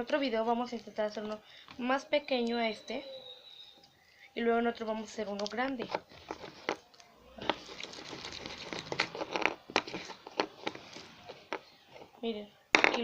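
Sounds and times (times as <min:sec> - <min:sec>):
hands kneading wet slime: 0:06.8 - 0:09.3.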